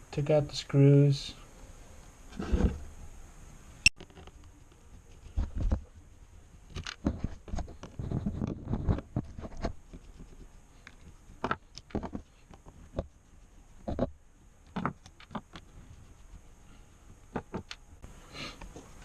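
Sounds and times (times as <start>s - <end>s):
rubbing on plastic: 4.0s - 17.7s.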